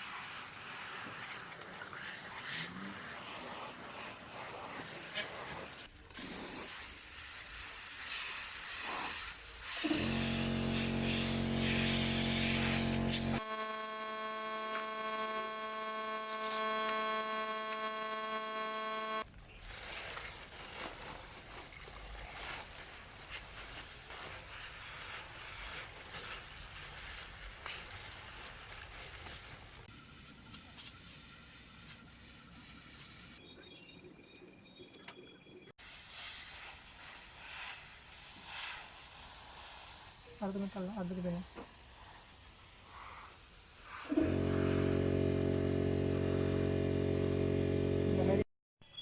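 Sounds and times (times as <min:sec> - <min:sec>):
paint spray hissing: 0:03.2 - 0:13.4, 0:30.0 - 0:33.4, 0:35.8 - 0:44.0
machine hum: 0:09.9 - 0:19.2, 0:44.2 - 0:48.4.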